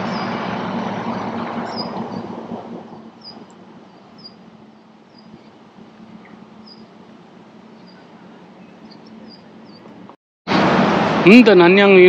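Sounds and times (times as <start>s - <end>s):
high bird chirps: 1.6s - 2.3s, 3.2s - 5.6s, 6.2s - 7.0s, 7.7s - 9.9s.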